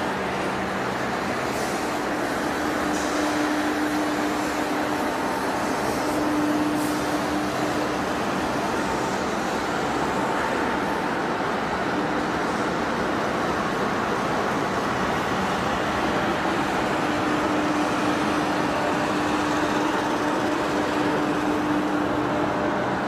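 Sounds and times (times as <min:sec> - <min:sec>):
industrial machinery din: 0:15.3 - 0:23.0.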